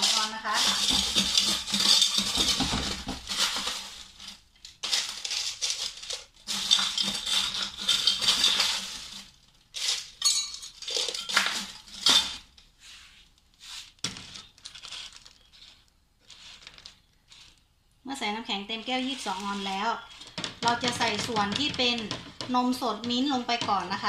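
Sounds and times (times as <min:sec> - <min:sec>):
ice cubes clinking into glass: 0:00.0 - 0:04.2, 0:04.8 - 0:12.4.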